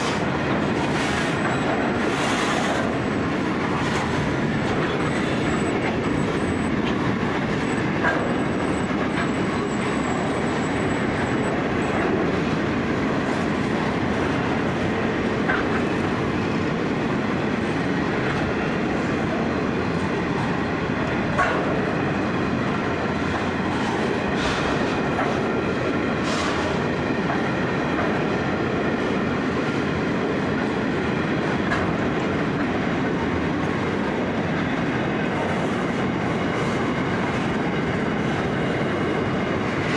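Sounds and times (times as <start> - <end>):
train wheels rumbling on rail: 0.0 - 39.9
high wheel squeal: 0.9 - 13.4
clicks of wheels on track: 20.0 - 22.0, 31.5 - 33.8.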